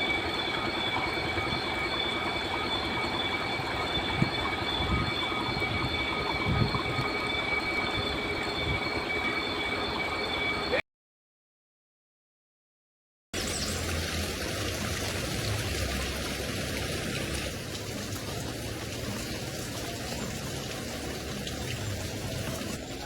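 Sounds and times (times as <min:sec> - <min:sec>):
river water flowing: 0:13.4 - 0:23.0.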